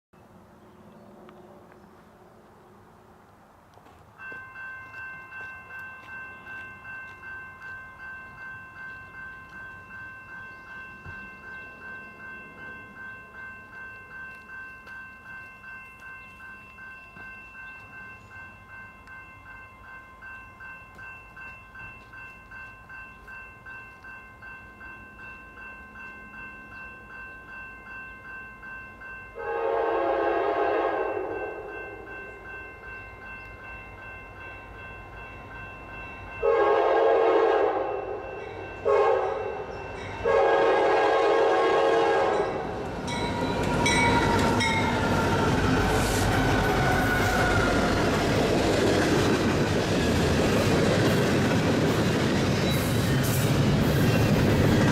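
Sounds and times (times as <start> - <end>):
crossing bell ringing: 4.1 - 54.9
freight train rumbling past: 17.1 - 54.9
locomotive air horn: 29.4 - 31.7, 36.4 - 38.2, 38.8 - 39.6, 40.2 - 42.7.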